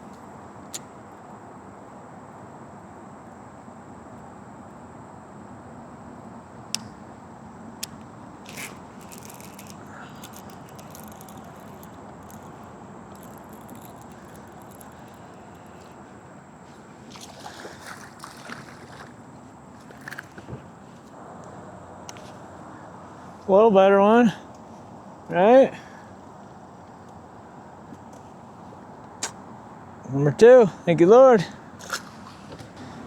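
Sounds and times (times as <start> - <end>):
steady outdoor hiss: 0.0 - 33.0
water sloshing and trickling: 7.8 - 21.1, 31.6 - 33.0
light scrapes and knocks: 8.4 - 19.1.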